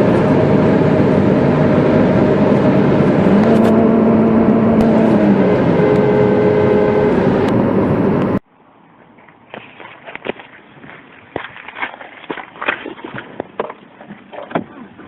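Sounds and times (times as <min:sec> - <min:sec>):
car engine running at high revs: 0:00.0 - 0:08.4
road noise: 0:00.0 - 0:15.0.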